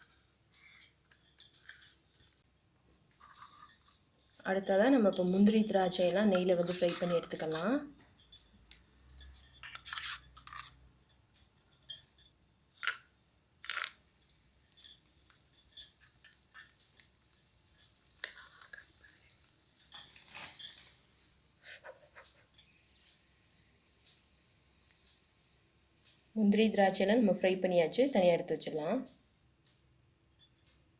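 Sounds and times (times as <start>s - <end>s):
faint frying hiss: 0.0s - 10.6s, 11.4s - 29.8s
tiny spoon clinking on metal pan: 3.4s - 13.0s.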